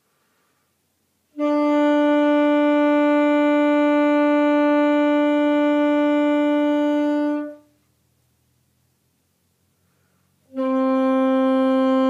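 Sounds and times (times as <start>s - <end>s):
saxophone mouthpiece long tone: 1.3s - 7.8s, 9.8s - 12.0s.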